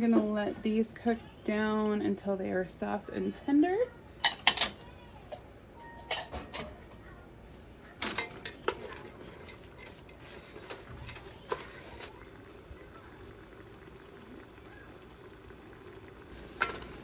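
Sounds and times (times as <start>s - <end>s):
utensil clanking against pot: 8.0s - 12.3s, 16.4s - 17.0s.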